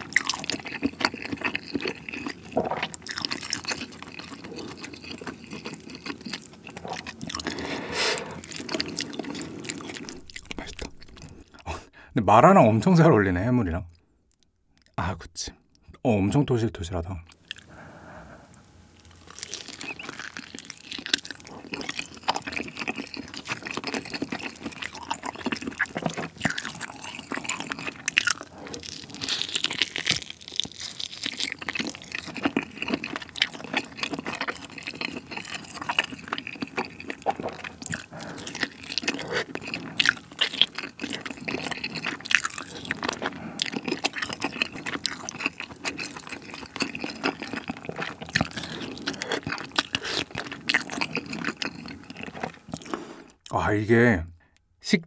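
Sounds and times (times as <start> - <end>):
wet chewing and crunching: 0.0 - 11.6, 17.2 - 53.5
mouth smacks and clicks: 10.1 - 11.9.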